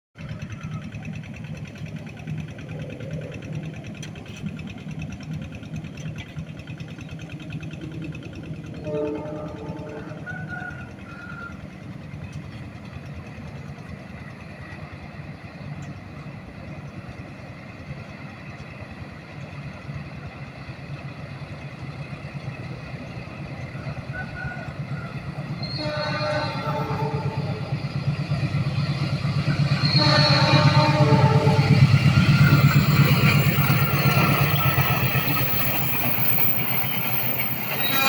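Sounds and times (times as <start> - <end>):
diesel train running: 0.2 - 38.0
train horn: 8.7 - 11.6, 23.8 - 38.0.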